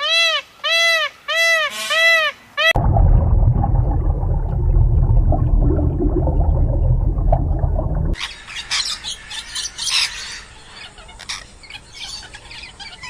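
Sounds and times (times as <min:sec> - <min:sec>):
loud low rumble: 0:02.8 - 0:08.2.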